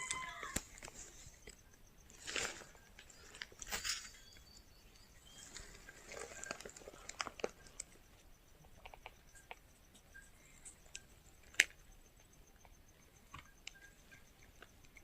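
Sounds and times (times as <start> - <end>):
rustle: 2.2 - 4.4.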